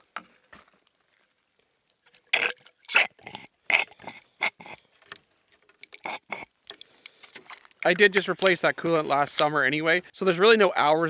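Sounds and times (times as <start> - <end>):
hard objects clicking and clattering: 2.4 - 9.1.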